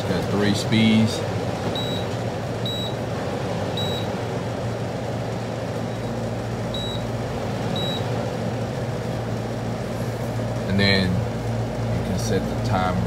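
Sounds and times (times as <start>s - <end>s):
dehumidifier fan running: 0.0s - 13.0s
short high beeps: 2.7s - 3.0s.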